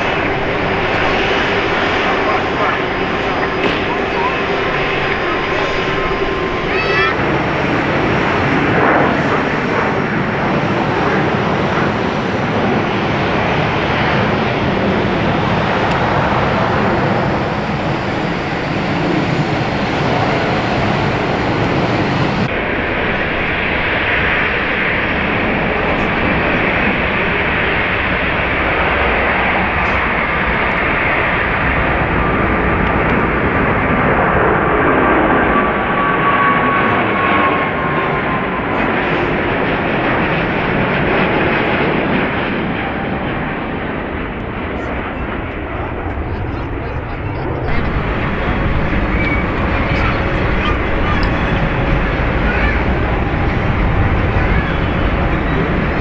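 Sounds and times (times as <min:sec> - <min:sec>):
thin engine whine: 0:00.0 - 0:12.3, 0:13.5 - 0:34.2, 0:47.7 - 0:56.0
jet engines running: 0:00.0 - 0:56.0.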